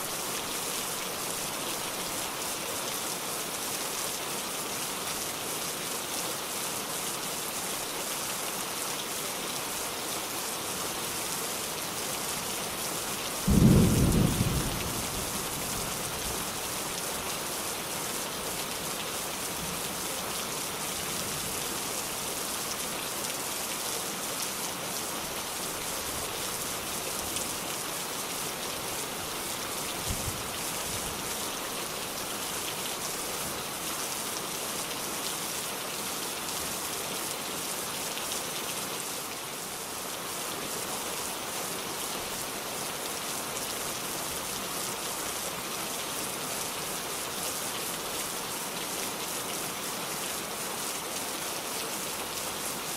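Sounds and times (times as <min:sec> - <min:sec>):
steady rain hissing: 0:00.0 - 0:52.9.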